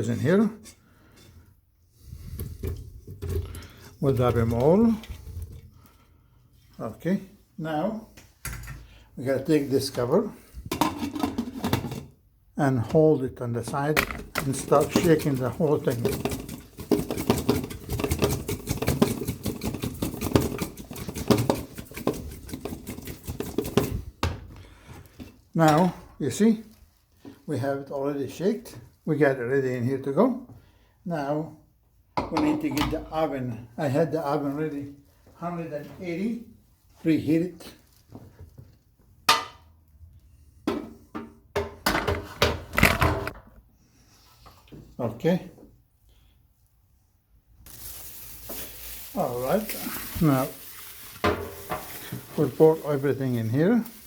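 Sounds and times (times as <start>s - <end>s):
metal cookware clanks and bangs: 10.7s - 12.1s, 32.2s - 33.1s, 39.3s - 39.8s, 40.7s - 43.4s.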